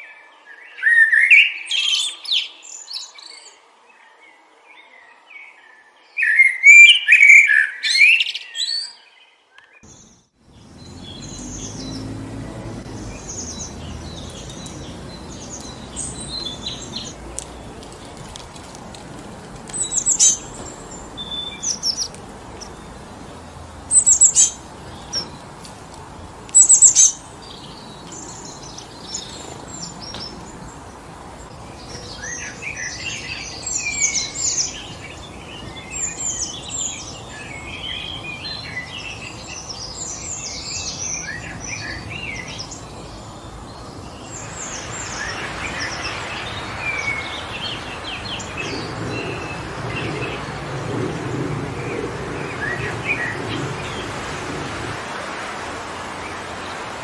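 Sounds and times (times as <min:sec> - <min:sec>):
songbirds chirping: 0:00.0 - 0:57.0
wind through trees: 0:00.0 - 0:57.0.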